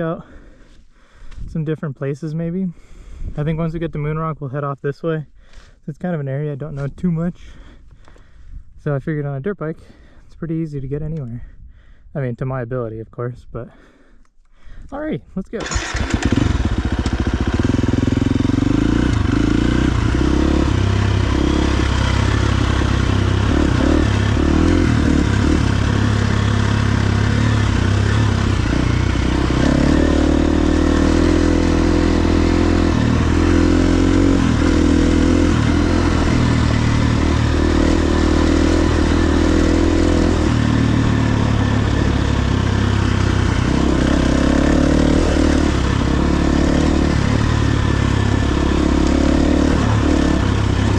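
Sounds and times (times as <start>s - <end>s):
dirt bike engine revving: 15.6s - 50.9s.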